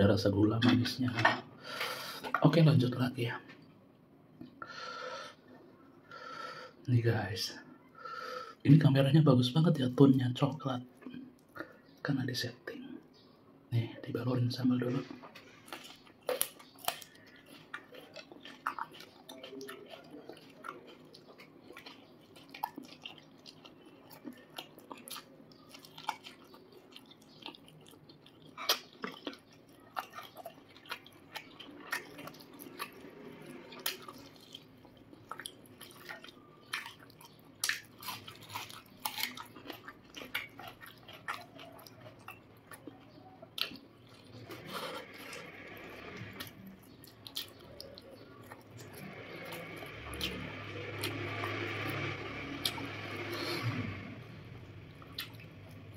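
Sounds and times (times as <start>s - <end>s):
person chewing food: 15.0s - 55.9s.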